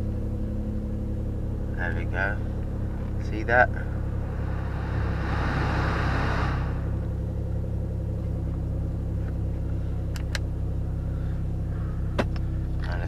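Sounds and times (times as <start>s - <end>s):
car engine idling: 0.0s - 13.0s
rushing hiss: 4.0s - 7.1s.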